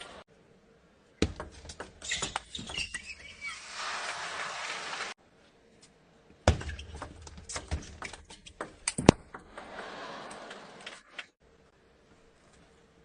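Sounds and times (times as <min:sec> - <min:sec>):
crowd noise: 0:00.0 - 0:00.2.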